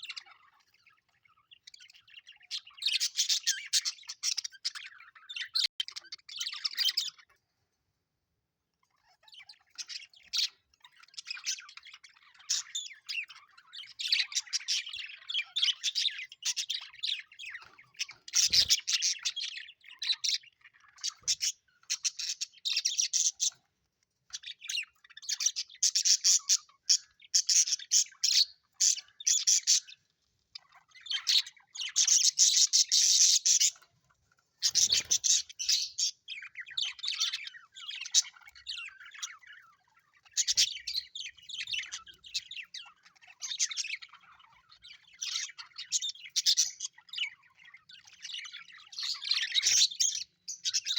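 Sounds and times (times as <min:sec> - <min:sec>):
budgerigars chattering: 0:00.0 - 0:07.4, 0:08.9 - 0:23.6, 0:24.3 - 0:33.9, 0:34.6 - 0:50.9.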